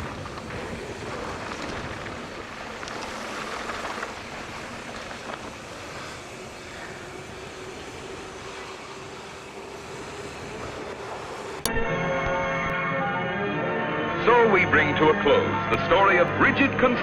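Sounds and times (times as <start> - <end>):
wind rush: 0.0 - 11.7
bike tyres rolling: 0.0 - 12.7.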